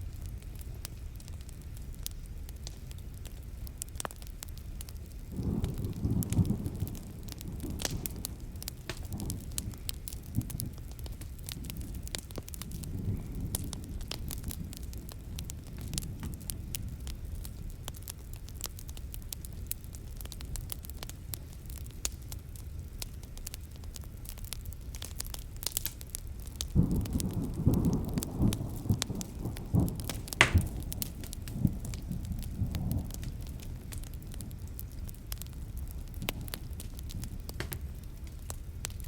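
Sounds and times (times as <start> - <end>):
wood fire crackling and popping: 0.0 - 39.0
thunder rumbling: 5.3 - 10.9, 26.8 - 38.5.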